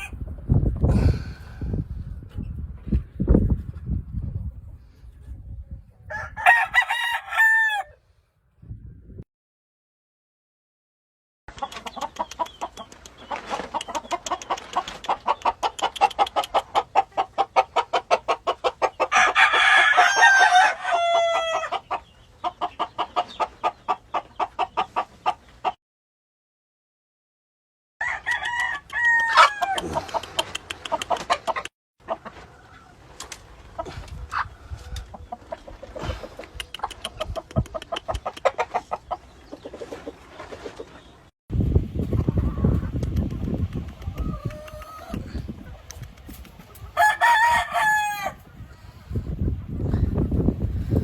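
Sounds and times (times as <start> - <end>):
roosters crowing: 6.1 - 8.0, 18.7 - 21.9, 28.0 - 30.3, 46.8 - 48.6
chickens clucking: 11.5 - 19.3, 21.2 - 25.8, 29.4 - 41.3, 42.0 - 51.0.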